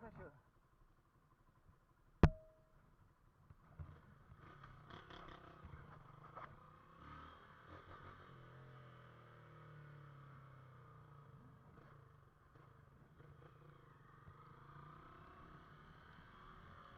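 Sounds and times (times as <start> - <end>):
distant motorcycle engines: 3.4 - 16.9.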